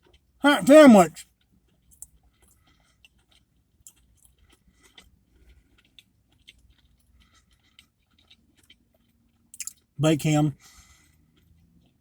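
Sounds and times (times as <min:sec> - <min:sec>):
chewing crispy food: 0:00.0 - 0:12.0
mouth clicks: 0:09.6 - 0:10.4.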